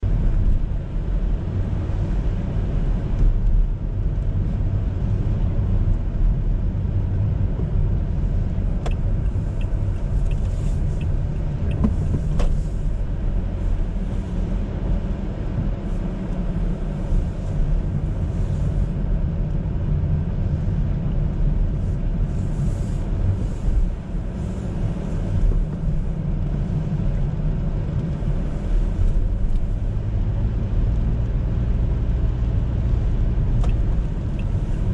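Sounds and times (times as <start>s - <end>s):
car engine and road noise: 0.0s - 34.9s.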